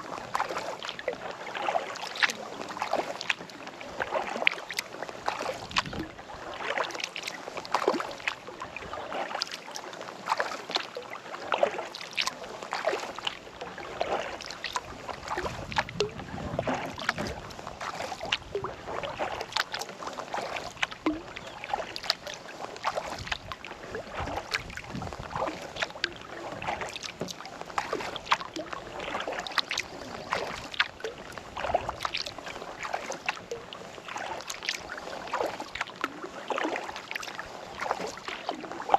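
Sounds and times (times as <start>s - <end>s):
kayak paddle dipping into water: 0.0s - 38.9s
water dripping off paddle: 0.2s - 38.9s.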